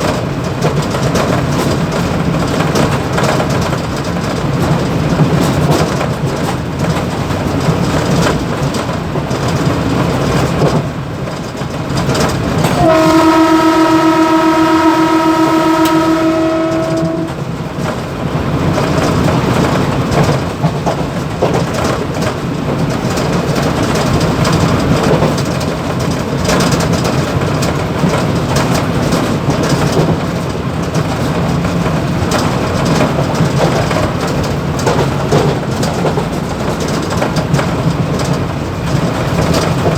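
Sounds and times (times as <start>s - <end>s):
train rumbling with wheel clatter: 0.0s - 39.9s
train horn held note: 12.7s - 17.5s.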